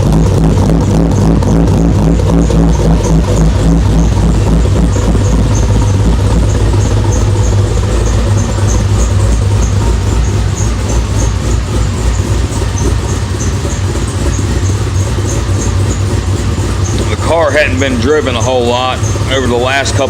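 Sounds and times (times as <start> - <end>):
car engine idling: 0.0 - 20.0
faint regular engine tick: 0.0 - 20.0.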